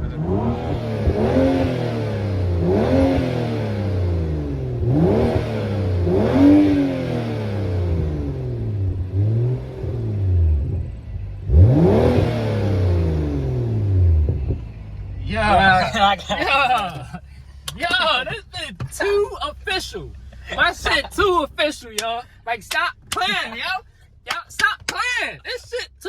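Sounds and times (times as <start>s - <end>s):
car exhaust revving: 0.0s - 26.0s.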